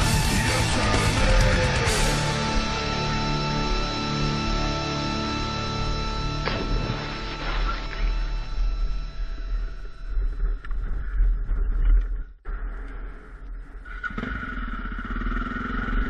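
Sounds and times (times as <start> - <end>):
background music: 0.0 - 9.9
wind rumble on microphone: 8.6 - 13.9
motorcycle engine running: 13.9 - 16.0.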